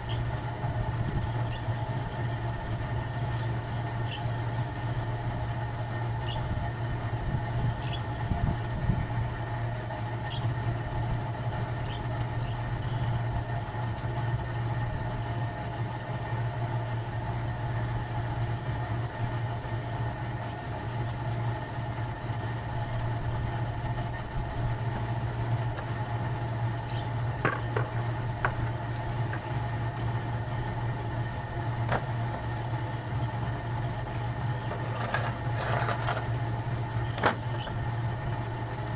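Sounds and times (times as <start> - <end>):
steady machine hum: 0.0 - 38.9.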